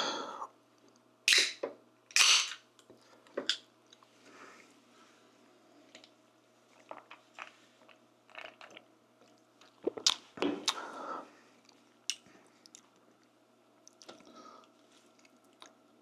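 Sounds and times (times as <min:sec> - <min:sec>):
person chewing food: 0:06.7 - 0:10.9, 0:11.6 - 0:15.9.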